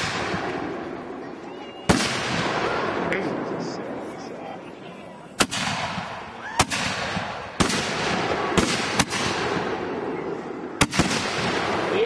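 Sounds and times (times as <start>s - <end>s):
firework mortar bangs: 0.0s - 1.0s, 1.9s - 3.8s, 5.4s - 12.0s.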